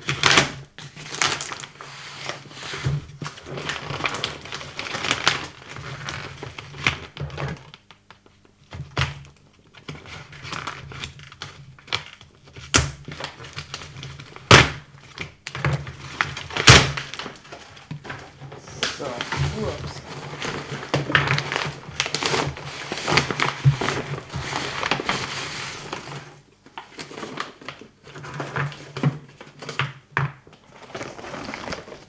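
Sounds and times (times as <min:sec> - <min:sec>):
cardboard box rustling and scraping: 0:18.4 - 0:26.3, 0:30.7 - 0:32.0.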